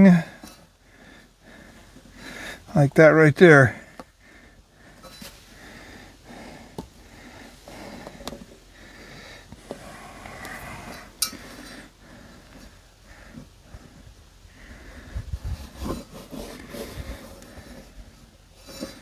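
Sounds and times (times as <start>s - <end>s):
hand rubbing inside tire: 4.9s - 19.0s.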